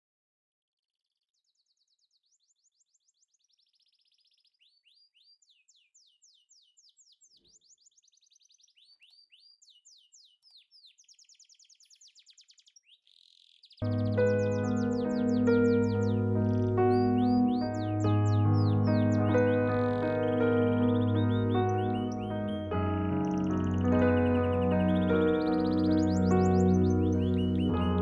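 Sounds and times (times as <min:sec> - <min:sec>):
songbird trilling: 0:04.3 - 0:28.0.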